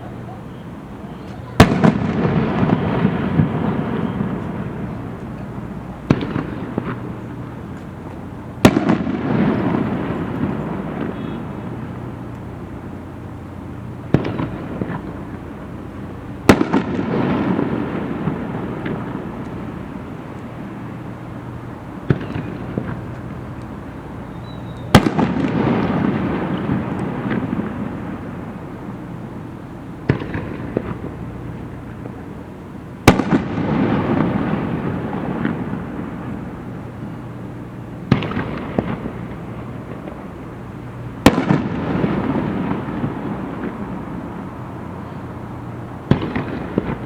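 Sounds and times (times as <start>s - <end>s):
firework shells bursting: 0.6s - 44.9s, 45.6s - 47.0s
rumbling echo and crackle: 0.7s - 47.0s.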